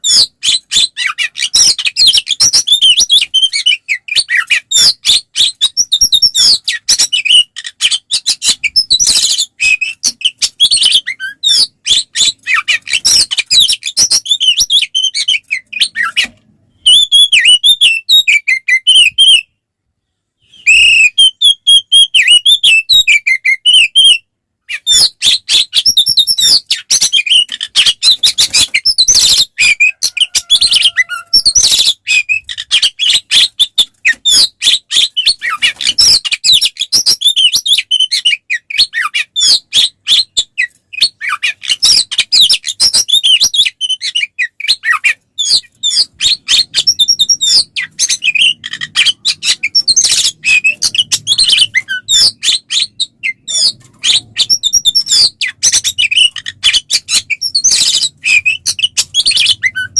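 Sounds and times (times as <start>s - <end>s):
bird singing whistles and chirps: 20.4s - 59.9s.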